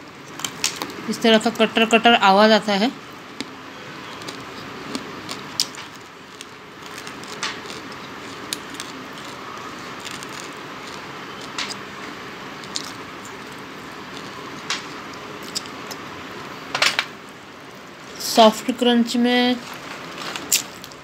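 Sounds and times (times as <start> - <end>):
person chewing hard crunchy clay: 3.3 - 16.1.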